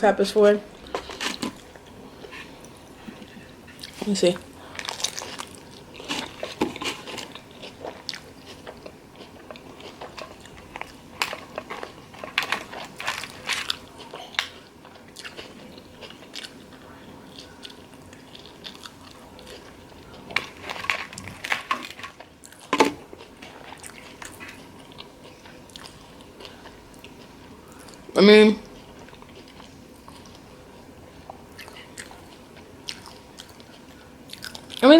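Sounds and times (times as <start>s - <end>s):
person chewing crunchy food: 0.7s - 34.8s.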